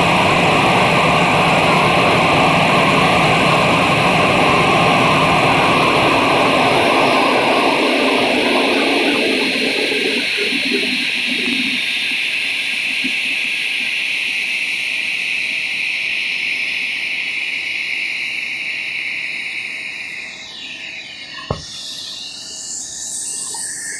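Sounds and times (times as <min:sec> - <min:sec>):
jet engine whine: 0:00.0 - 0:23.9
short thump: 0:21.4 - 0:21.8.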